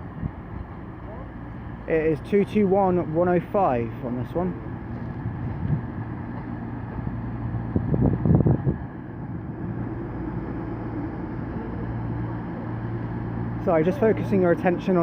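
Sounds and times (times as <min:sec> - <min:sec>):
diesel train engines idling: 0:00.0 - 0:15.0.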